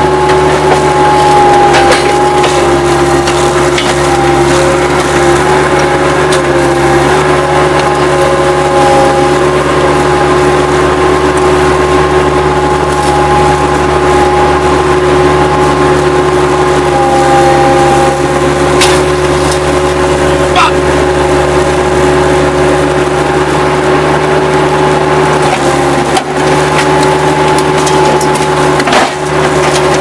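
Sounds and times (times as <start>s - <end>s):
diesel engine running: 0.0s - 30.0s
steady whine: 0.0s - 30.0s.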